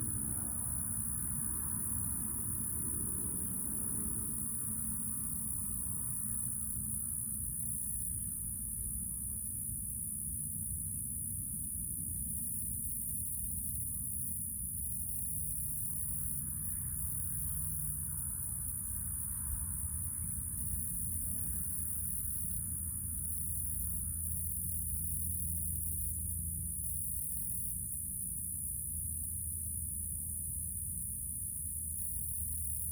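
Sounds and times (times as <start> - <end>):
high-pitched insect trill: 0.0 - 32.9.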